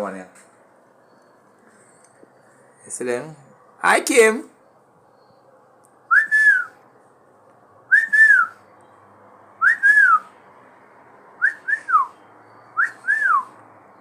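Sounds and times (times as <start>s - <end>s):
parrot whistling: 6.1s - 6.8s, 7.9s - 8.6s, 9.6s - 10.3s, 11.4s - 12.2s, 12.8s - 13.5s.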